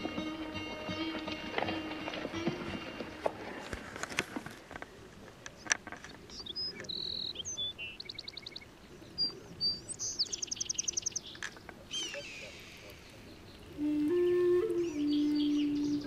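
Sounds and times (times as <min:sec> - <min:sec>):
small birds chirping: 0:05.5 - 0:13.8, 0:14.7 - 0:16.0
high whistled bird notes: 0:11.9 - 0:16.0.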